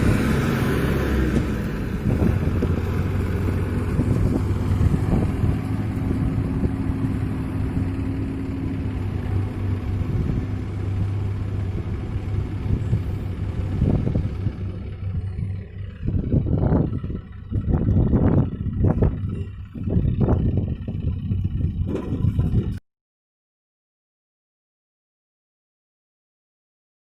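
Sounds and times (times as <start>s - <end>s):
tractor diesel engine droning: 0.0s - 22.8s.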